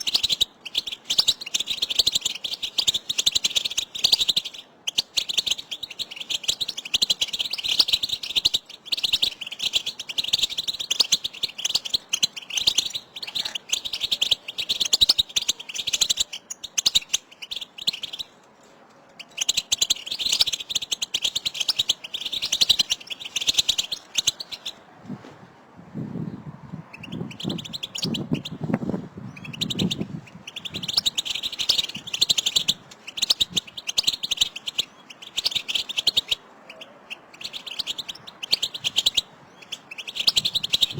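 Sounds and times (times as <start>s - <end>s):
finches twittering: 0.0s - 18.4s, 19.2s - 24.9s, 26.0s - 40.9s.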